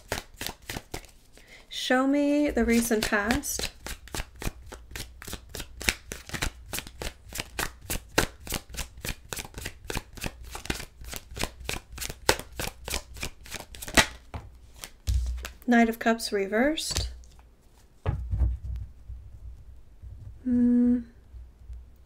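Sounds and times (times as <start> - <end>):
cards being shuffled: 0.0 - 1.4, 2.5 - 15.7, 16.8 - 17.9.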